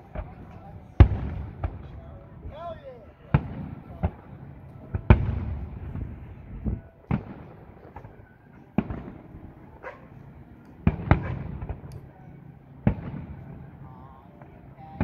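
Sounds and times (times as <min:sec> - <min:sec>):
firework bursts with rumbling echo: 0:00.0 - 0:12.0, 0:12.8 - 0:15.0.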